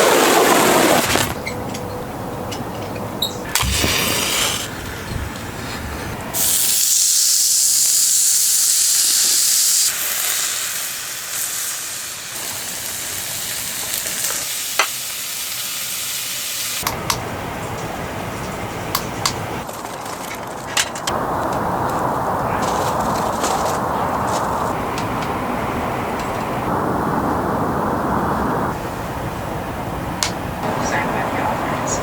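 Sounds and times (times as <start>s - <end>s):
high-pitched hiss: 6.4s - 16.9s.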